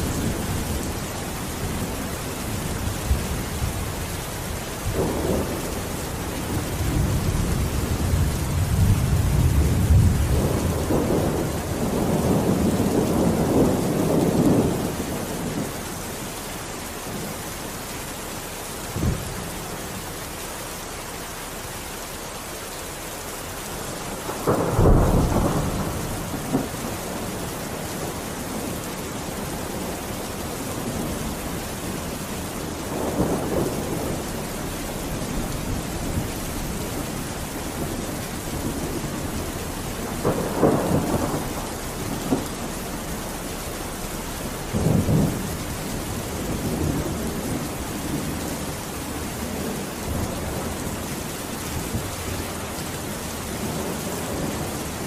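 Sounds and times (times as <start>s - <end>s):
thunder rumbling: 0.0s - 16.4s, 23.7s - 55.0s
steady rain: 0.0s - 55.0s
thunder clap: 24.2s - 27.4s, 32.9s - 43.1s.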